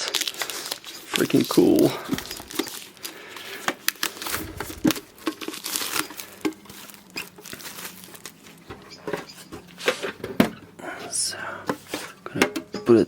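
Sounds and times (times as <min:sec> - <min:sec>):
plastic wrapping crinkling: 0:04.9 - 0:08.5.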